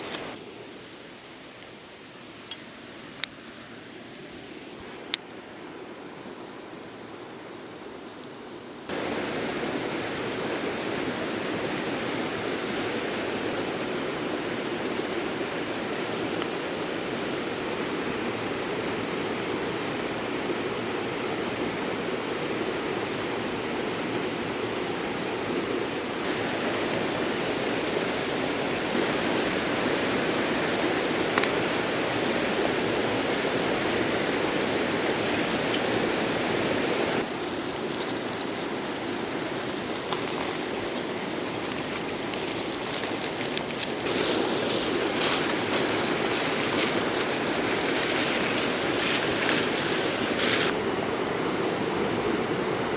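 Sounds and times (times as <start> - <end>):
river water rushing: 26.2 - 50.9.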